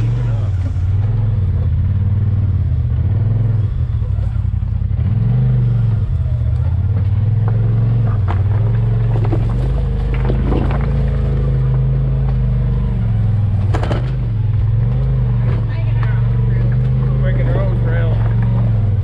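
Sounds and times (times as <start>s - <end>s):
off-road vehicle engine running: 0.0s - 19.0s
knocks and clatter from rough ground: 6.4s - 19.0s.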